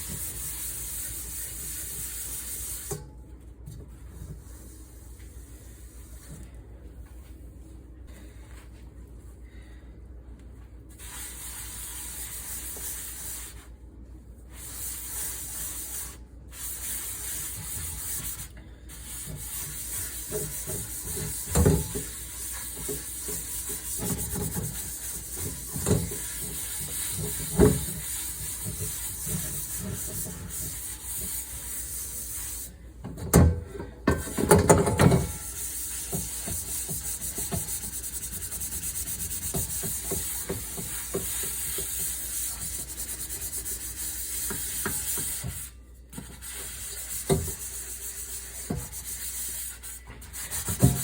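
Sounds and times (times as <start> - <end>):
scrubbing dishes: 19.0 - 45.6.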